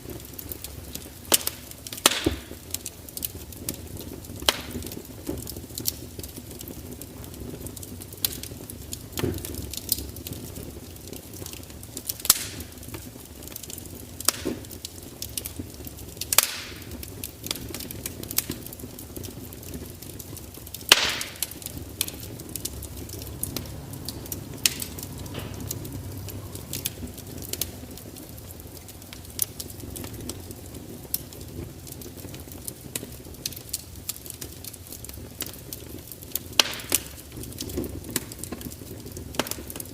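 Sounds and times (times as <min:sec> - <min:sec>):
fire crackling and popping: 0:00.0 - 0:39.9
low steady rumble: 0:19.5 - 0:33.2.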